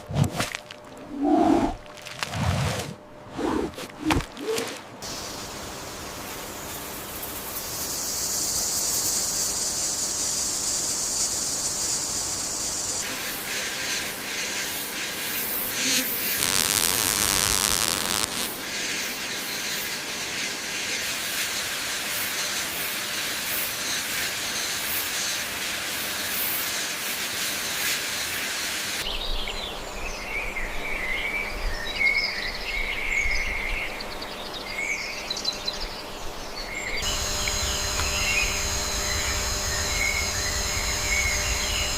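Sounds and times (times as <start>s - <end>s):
high insect drone: 4.4s - 29.0s, 37.0s - 41.9s
hiss with scattered ticks: 5.0s - 29.0s.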